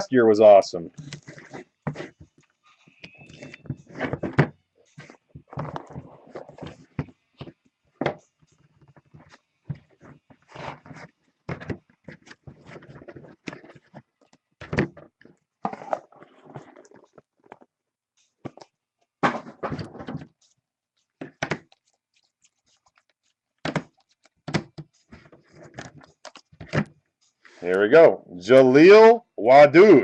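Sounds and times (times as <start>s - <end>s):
cards sliding scrapes: 1.0s - 2.3s, 9.0s - 11.1s
cards knocking and tapping: 18.4s - 21.9s, 23.6s - 26.9s.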